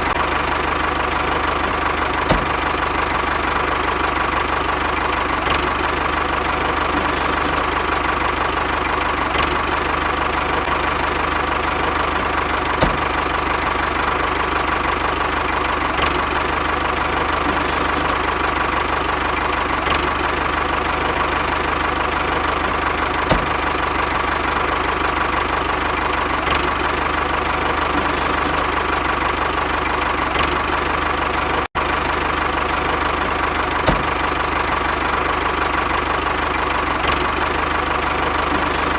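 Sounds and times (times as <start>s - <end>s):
small tractor engine running: 0.0s - 38.9s
sharp knocks: 2.3s - 2.6s, 12.8s - 13.2s, 33.8s - 34.2s.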